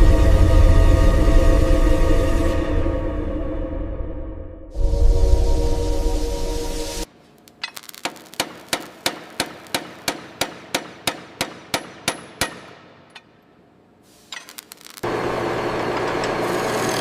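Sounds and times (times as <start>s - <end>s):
hammer striking metal: 7.6s - 13.4s.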